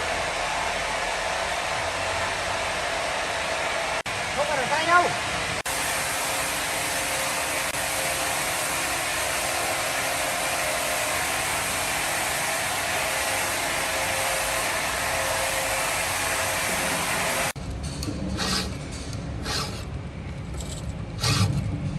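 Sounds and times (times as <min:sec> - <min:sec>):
woodworking machine running: 0:00.0 - 0:17.6.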